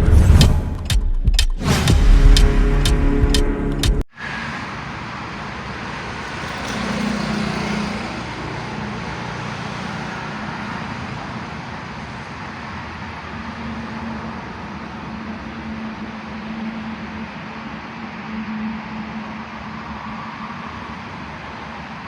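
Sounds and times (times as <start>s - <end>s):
burst of music: 0.0s - 4.1s
traffic noise: 0.0s - 22.0s.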